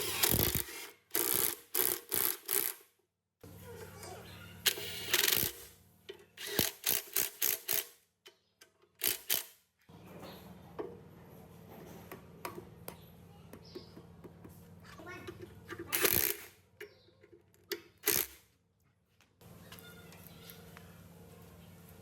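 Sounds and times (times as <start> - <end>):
metal tools clicking and knocking: 15.2 - 18.4
low mechanical hum: 19.4 - 22.0.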